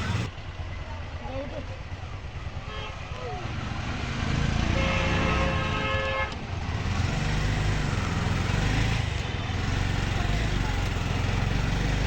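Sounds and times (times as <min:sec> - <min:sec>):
traffic engine and road noise: 0:00.0 - 0:12.0
vehicle horn: 0:02.6 - 0:03.2, 0:04.7 - 0:06.4.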